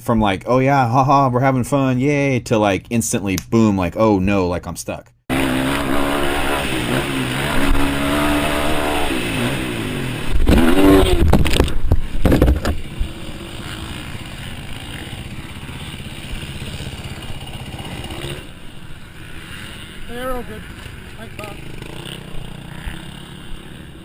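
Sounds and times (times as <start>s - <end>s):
motorcycle engine revving: 5.3s - 24.0s
clattering and scraping: 10.3s - 12.9s.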